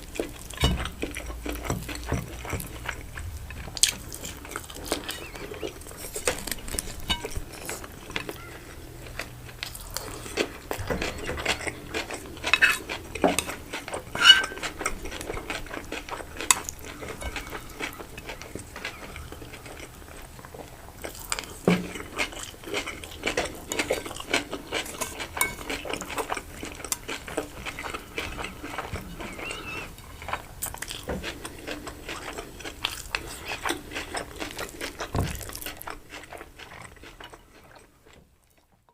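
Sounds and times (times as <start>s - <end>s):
biting and chewing: 0.0s - 38.9s
cutlery clinking on a plate: 6.3s - 7.8s, 12.4s - 14.8s.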